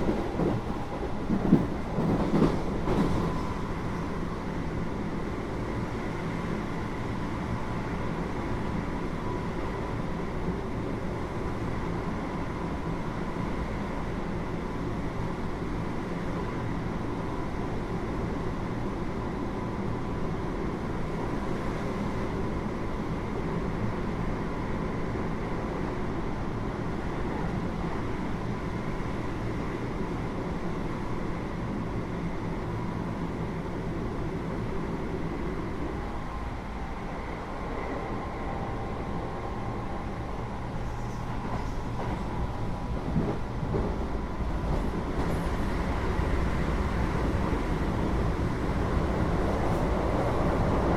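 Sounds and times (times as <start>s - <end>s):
train wheels rumbling on rail: 0.0s - 50.9s.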